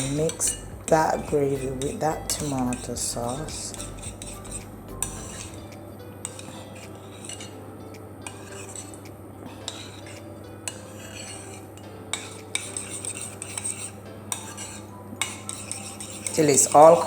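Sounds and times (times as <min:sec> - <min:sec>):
steady low hum: 0:00.0 - 0:06.2
spoon clinking and scraping bowl: 0:00.0 - 0:07.6, 0:08.2 - 0:17.0.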